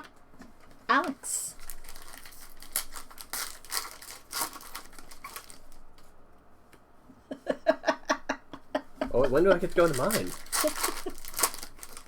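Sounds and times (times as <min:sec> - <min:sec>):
foil wrappers tearing and crinkling: 0:01.6 - 0:05.8, 0:09.2 - 0:12.0.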